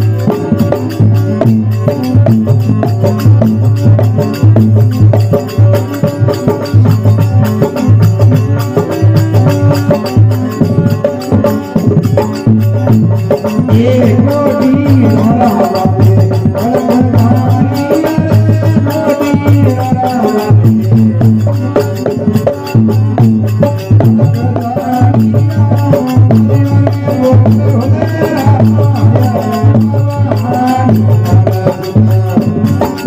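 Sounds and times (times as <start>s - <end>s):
folk devotional music: 0.0s - 33.0s.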